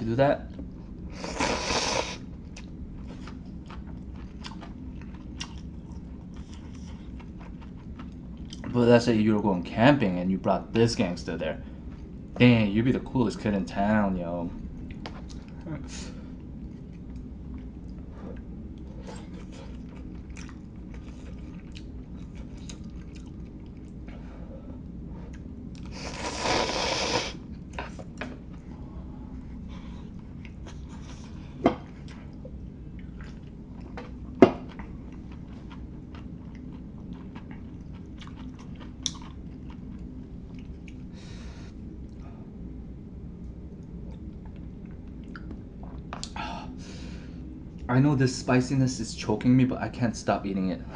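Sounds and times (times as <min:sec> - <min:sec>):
close chewing mouth sounds: 0:02.4 - 0:08.8, 0:16.6 - 0:24.0, 0:34.7 - 0:41.1.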